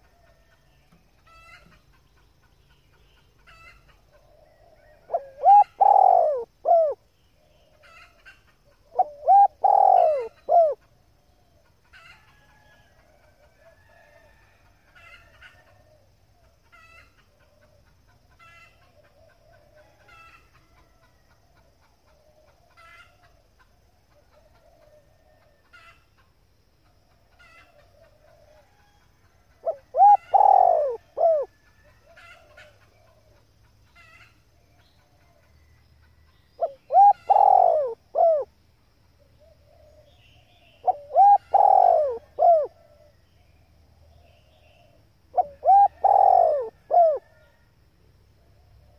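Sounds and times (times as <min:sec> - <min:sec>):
dove cooing: 0:03.5 - 0:11.7, 0:29.6 - 0:33.4, 0:36.6 - 0:38.5, 0:39.2 - 0:43.2, 0:44.2 - 0:47.5.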